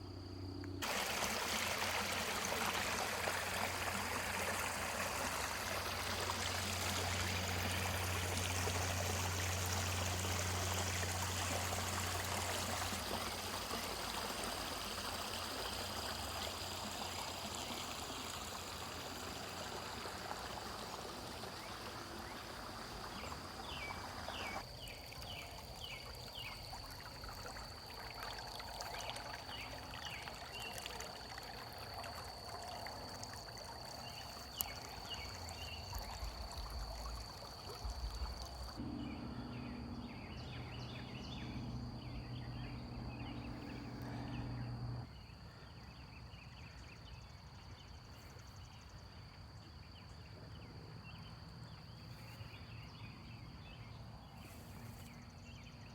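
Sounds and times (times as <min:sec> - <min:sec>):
creek water running: 0:00.8 - 0:45.1.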